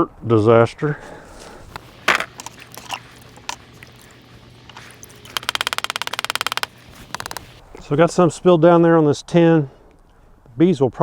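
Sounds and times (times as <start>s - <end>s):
clicks and knocks of beehive equipment: 1.4s - 7.9s
rattling clicks: 1.7s - 7.6s.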